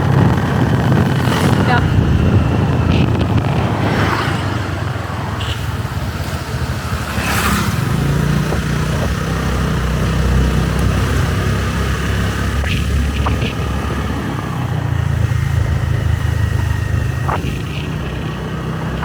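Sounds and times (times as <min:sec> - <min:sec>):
motorbike engine running: 0:00.0 - 0:19.0
road and wind noise: 0:00.0 - 0:19.0.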